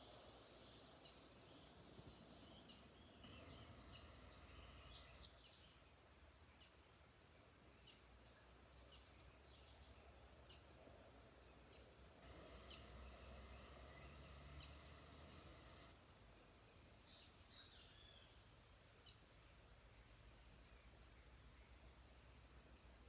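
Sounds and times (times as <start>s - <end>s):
steady high hiss: 0.0s - 5.4s, 12.0s - 16.6s.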